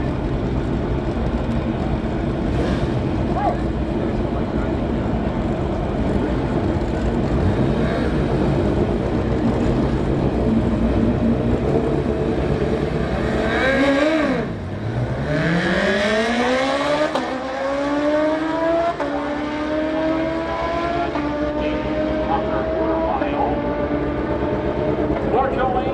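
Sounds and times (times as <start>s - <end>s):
motorcycle engine revving: 7.0s - 25.5s.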